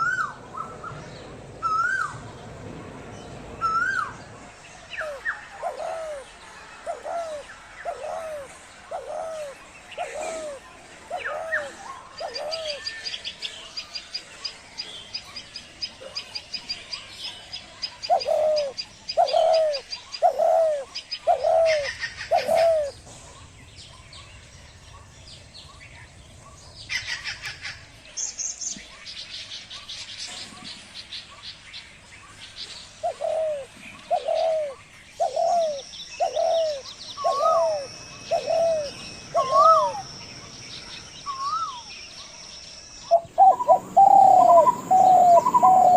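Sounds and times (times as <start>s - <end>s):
small birds chirping: 0.0s - 45.9s
dove cooing: 5.0s - 6.2s, 6.9s - 12.8s, 18.1s - 23.3s, 33.0s - 40.2s, 43.1s - 45.9s
thin steady high tone: 36.2s - 45.9s.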